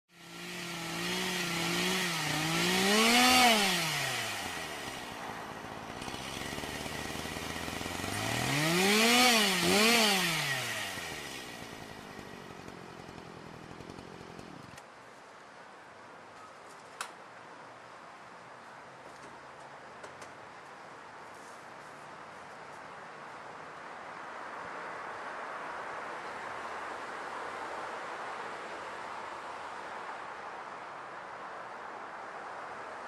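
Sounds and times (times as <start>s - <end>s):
chainsaw engine revving: 0.1s - 14.8s.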